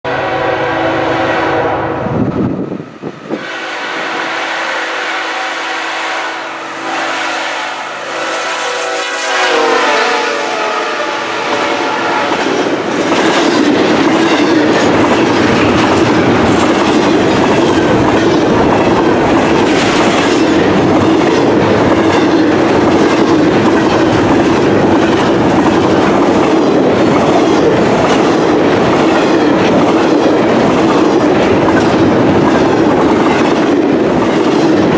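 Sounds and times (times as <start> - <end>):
locomotive horn: 0.1 - 2.3, 3.3 - 12.8
train wheels rumbling and clattering: 6.7 - 34.9.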